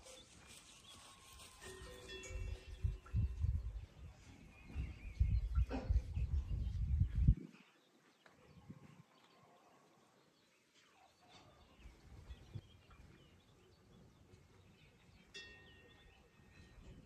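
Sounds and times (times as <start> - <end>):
bird chirps: 10.7 - 17.0.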